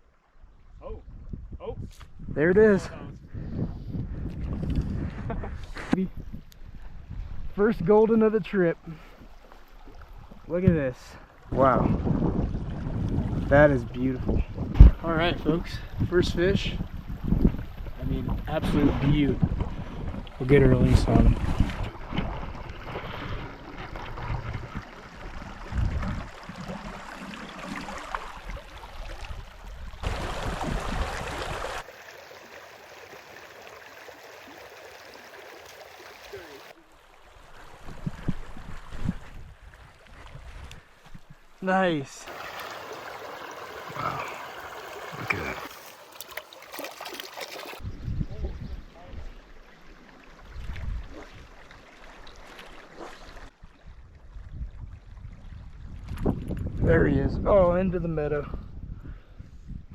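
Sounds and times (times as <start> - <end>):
wind on microphone: 0.5 - 7.9, 11.5 - 31.8, 37.5 - 41.5, 47.8 - 49.4, 50.4 - 51.6, 53.6 - 59.9
creek water flowing: 6.6 - 47.9, 48.5 - 56.2
creek water rushing: 21.8 - 38.0, 41.6 - 47.8.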